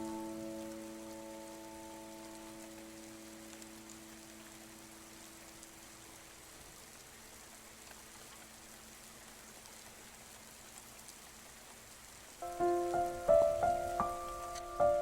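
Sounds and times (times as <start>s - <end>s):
piano note: 0.0s - 3.1s, 12.4s - 15.0s
faint rain hiss: 0.0s - 15.0s
rain drops tapping: 0.0s - 15.0s.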